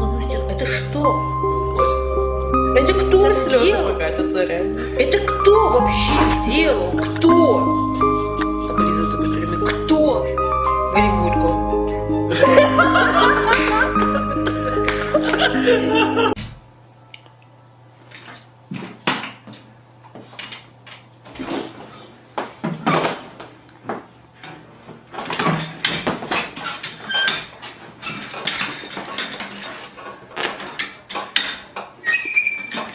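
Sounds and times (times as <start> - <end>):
music: 0.0 - 17.4.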